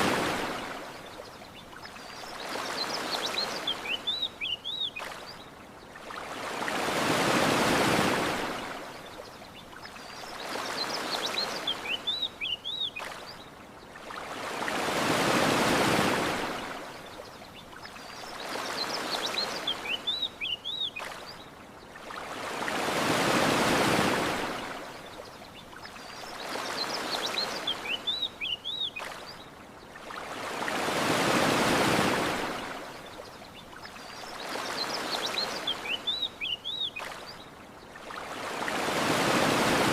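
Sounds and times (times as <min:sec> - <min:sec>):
ocean waves washing onto shore: 0:00.0 - 0:39.9
small birds chirping: 0:01.0 - 0:06.1, 0:09.0 - 0:14.0, 0:16.9 - 0:22.2, 0:24.9 - 0:30.2, 0:32.9 - 0:38.2.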